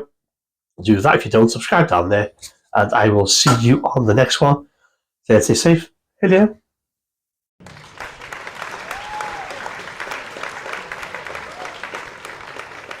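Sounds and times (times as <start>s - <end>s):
crowd applause: 7.6s - 13.0s.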